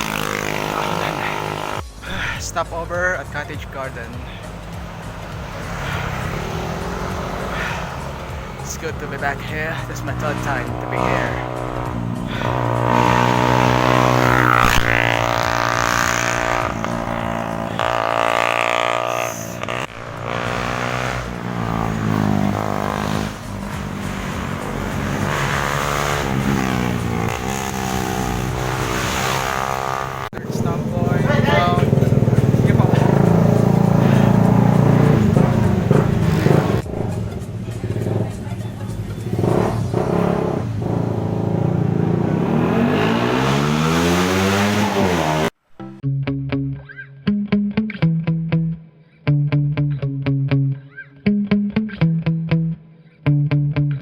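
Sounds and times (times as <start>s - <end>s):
motorcycle engines revving: 0.0s - 45.6s.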